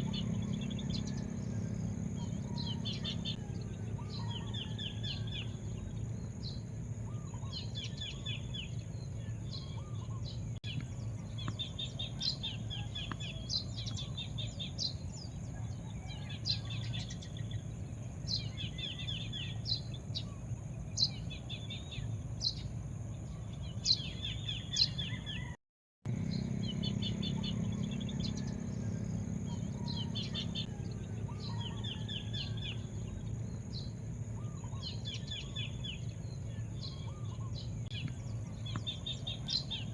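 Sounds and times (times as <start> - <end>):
small birds chirping: 0.0 - 39.9
steady low rumble: 26.1 - 39.9.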